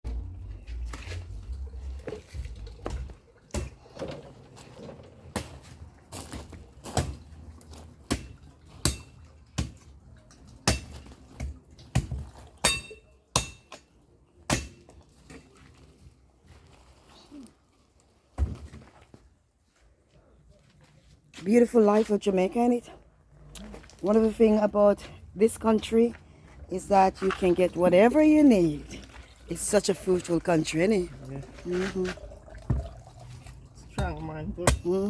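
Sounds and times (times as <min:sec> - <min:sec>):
machete chopping coconut: 0:08.1 - 0:09.8, 0:10.6 - 0:13.9, 0:14.5 - 0:14.9, 0:34.0 - 0:35.0.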